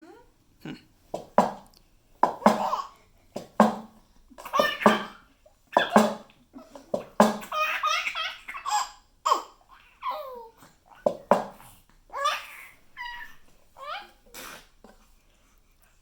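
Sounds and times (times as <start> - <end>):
baby babbling: 4.4 - 5.2, 7.4 - 11.1, 12.1 - 14.2
baby laughing and squealing: 4.4 - 5.2, 7.4 - 10.2.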